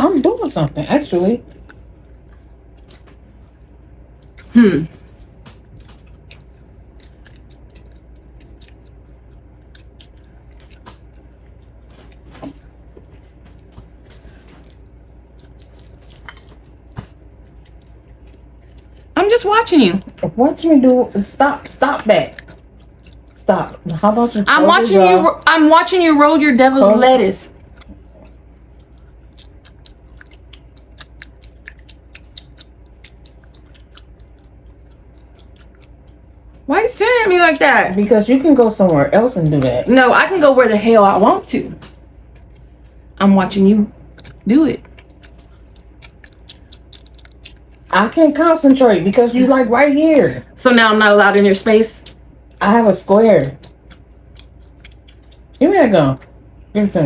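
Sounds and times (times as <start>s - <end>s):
gum chewing smacks: 1.5s - 19.2s, 21.9s - 24.5s, 27.6s - 36.7s, 41.8s - 43.1s, 44.1s - 47.9s, 53.4s - 55.6s.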